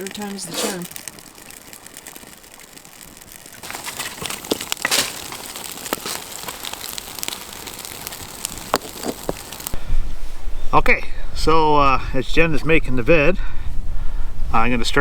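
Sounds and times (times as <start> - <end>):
kindling crackling in campfire: 0.0 - 9.8
fire rushing: 0.0 - 9.9.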